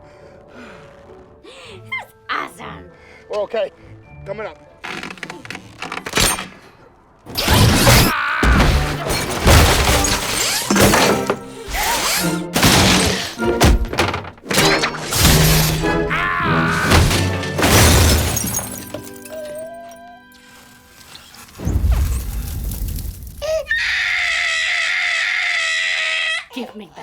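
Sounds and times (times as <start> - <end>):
film score music: 0.0 - 22.4
loud crashes and thuds: 7.3 - 19.2
things shattering: 7.3 - 23.5
voice crying out: 16.0 - 16.9.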